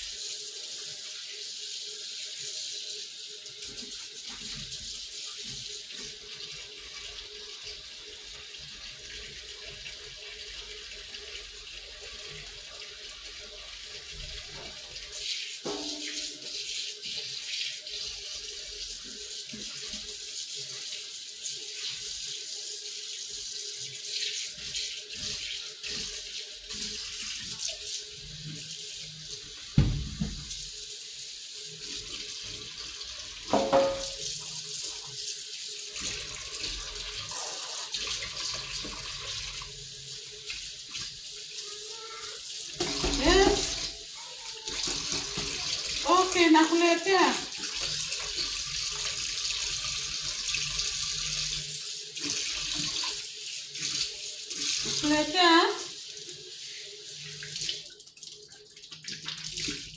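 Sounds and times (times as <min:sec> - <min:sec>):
tap water running into sink: 0:00.0 - 0:59.9
knocks and thumps: 0:29.8 - 0:30.5.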